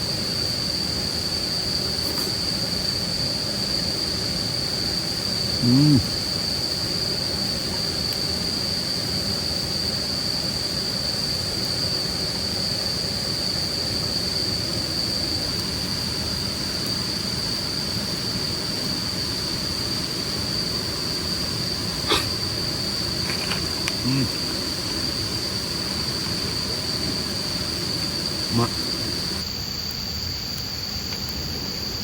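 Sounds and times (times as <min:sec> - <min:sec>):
crickets trilling: 0:00.0 - 0:32.0.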